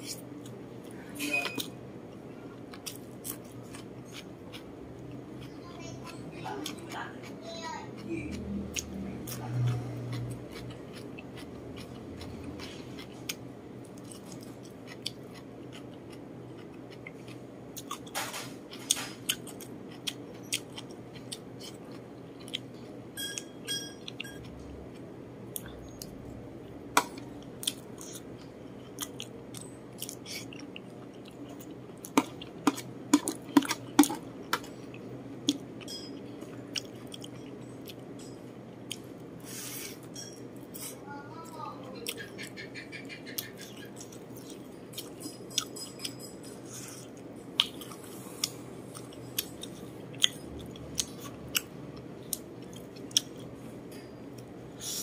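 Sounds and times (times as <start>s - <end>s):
person chewing: 0.0s - 7.4s, 8.3s - 18.1s, 18.7s - 23.4s, 24.0s - 41.0s, 43.3s - 55.0s
spoon clinking on plate: 23.2s - 24.4s.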